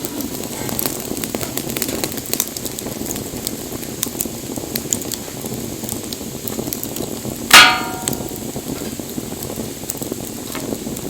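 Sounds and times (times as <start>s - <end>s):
wood fire crackling: 0.0s - 11.0s
loud sharp crack: 7.5s - 8.6s.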